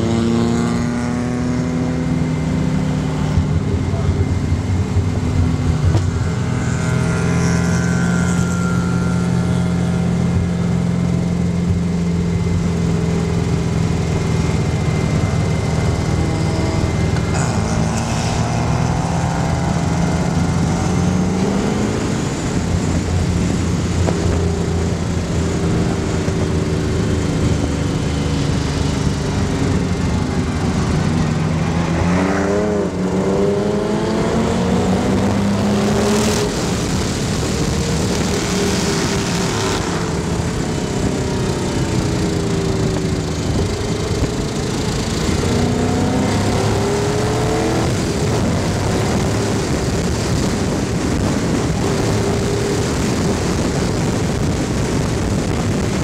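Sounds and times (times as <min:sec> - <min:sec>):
race car engine revving: 0:00.0 - 0:56.0
wind rush: 0:12.2 - 0:56.0.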